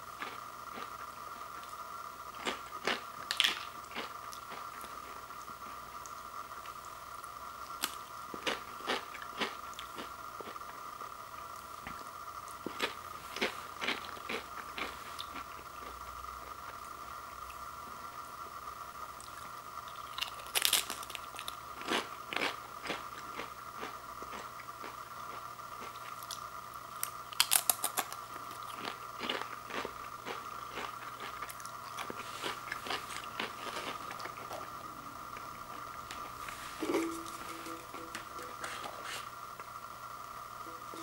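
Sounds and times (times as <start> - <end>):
steady high hum: 0.0 - 41.0
potato crisp crunching: 2.4 - 5.2, 12.5 - 16.0, 19.9 - 39.7.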